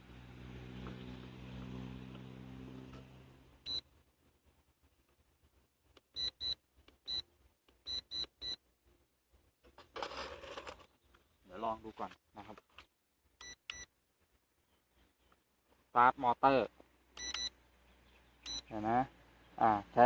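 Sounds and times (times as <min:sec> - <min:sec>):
high-pitched electronic beeps: 0:18.4 - 0:18.7.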